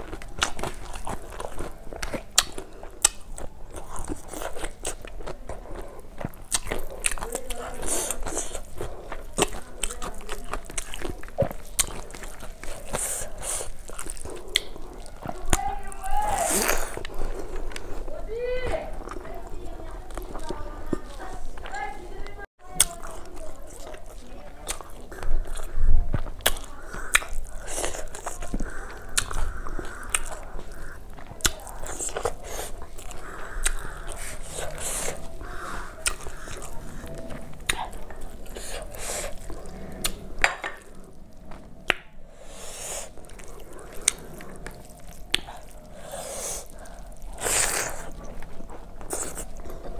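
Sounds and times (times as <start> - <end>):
fingers squishing rice: 0.0 - 18.0, 22.8 - 49.9
chewing food: 0.0 - 49.9
wet mouth clicks and smacks: 10.6 - 15.6, 24.7 - 49.6
wet mouth smacks and clicks: 13.3 - 15.4, 25.4 - 28.4, 41.8 - 42.2, 42.8 - 45.8.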